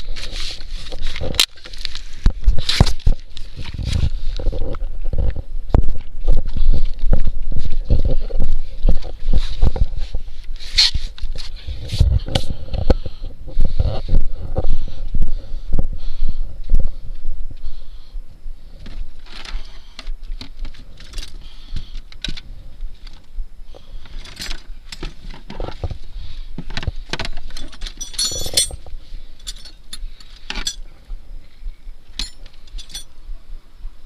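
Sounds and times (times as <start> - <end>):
metal clinking and knocking: 27.5 - 30.8, 32.2 - 33.1
bright jingling clinks: 27.6 - 28.8, 32.2 - 33.1.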